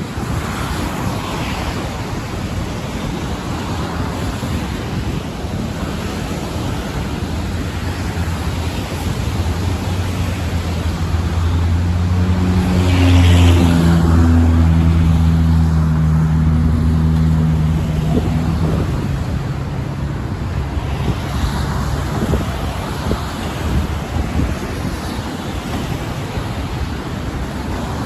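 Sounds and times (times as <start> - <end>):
wind noise: 0.0 - 28.0
motor vehicle droning hum: 5.8 - 28.0.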